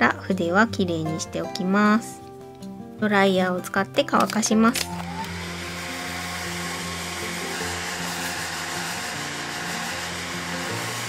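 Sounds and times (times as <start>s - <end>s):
hair dryer blowing: 4.8s - 11.0s.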